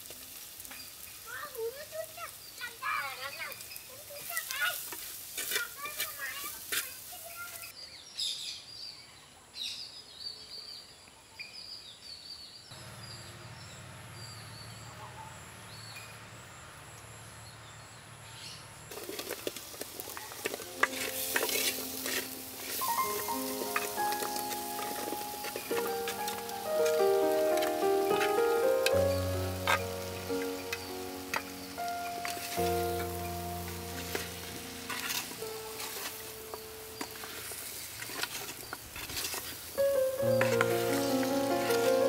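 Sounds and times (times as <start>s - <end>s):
food sizzling: 0.0s - 7.8s, 18.9s - 42.0s
high bird chirps: 21.8s - 37.3s.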